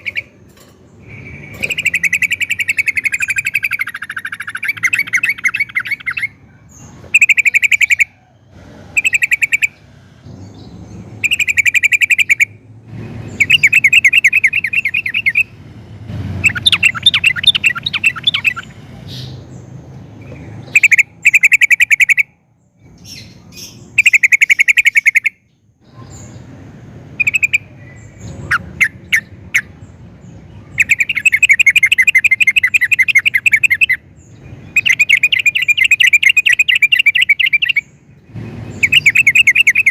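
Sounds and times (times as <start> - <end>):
bulbul singing: 0.0 - 39.9.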